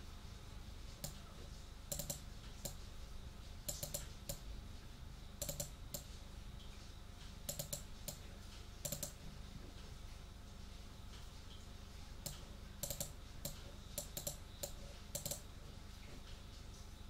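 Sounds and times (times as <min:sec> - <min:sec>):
keyboard keys clicking: 0:01.9 - 0:02.2.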